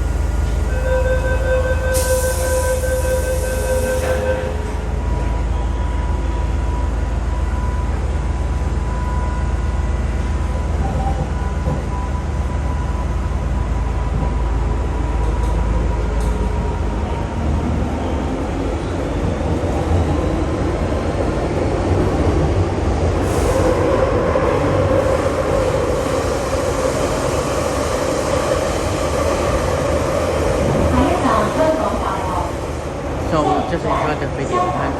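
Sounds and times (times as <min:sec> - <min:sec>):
train wheels rumbling: 0:00.0 - 0:34.9.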